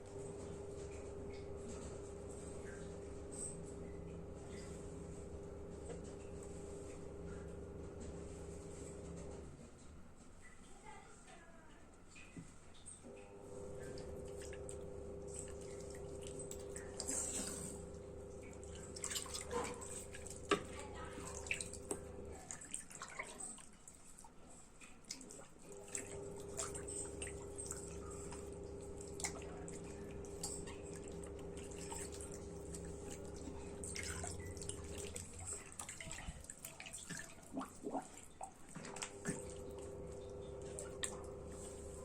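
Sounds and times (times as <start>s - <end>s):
water dripping and splashing: 13.6s - 41.7s.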